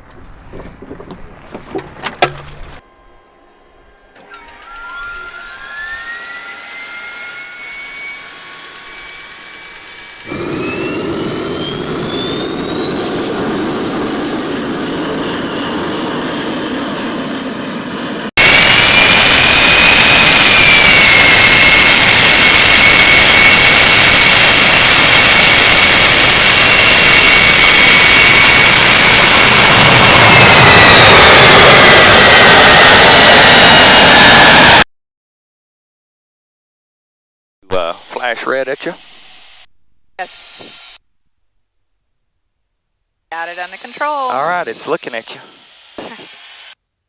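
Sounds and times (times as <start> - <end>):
jet engine spooling up whine: 4.2 - 34.9.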